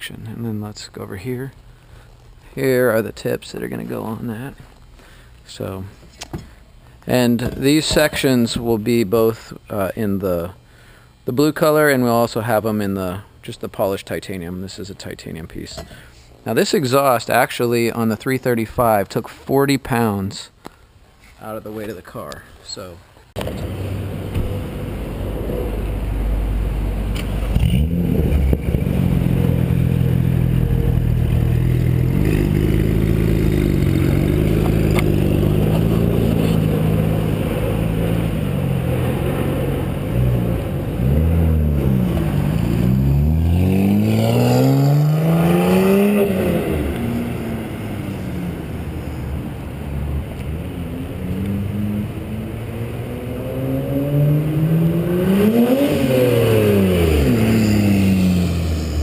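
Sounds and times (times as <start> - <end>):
car engine idling and revving: 23.4 - 59.0.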